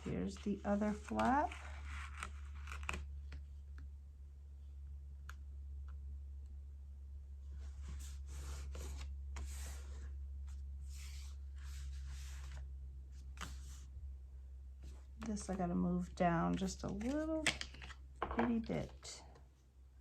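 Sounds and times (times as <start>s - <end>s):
steady low hum: 0.0s - 20.0s
paper swishing and rubbing: 7.7s - 10.1s, 10.8s - 12.6s, 13.2s - 13.9s.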